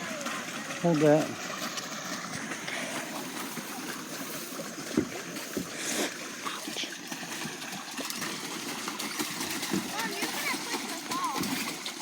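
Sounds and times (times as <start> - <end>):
water lapping: 0.0 - 12.0
dull knocks of boat: 4.8 - 5.8, 9.6 - 10.2.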